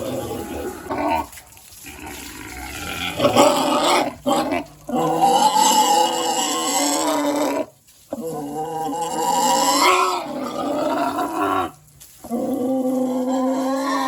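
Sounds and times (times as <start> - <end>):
pigs squealing: 0.0 - 14.0.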